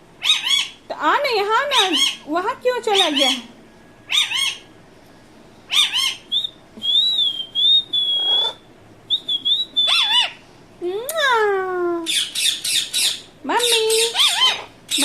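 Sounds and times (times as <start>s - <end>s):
parrot squawks: 0.2s - 0.8s, 1.8s - 2.3s, 2.9s - 3.5s, 4.1s - 4.7s, 5.7s - 6.4s, 8.1s - 8.6s, 9.8s - 10.4s, 12.1s - 15.0s
parrot whistling: 4.1s - 4.7s, 5.7s - 10.4s, 13.9s - 15.0s.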